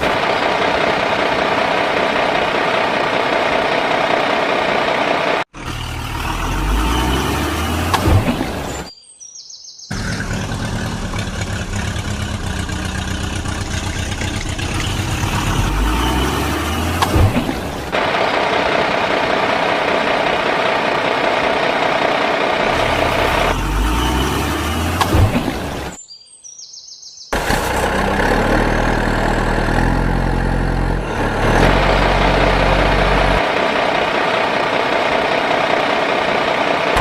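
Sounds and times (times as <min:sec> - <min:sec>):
engine running with low pulsing: 0:09.9 - 0:26.0, 0:27.4 - 0:37.0.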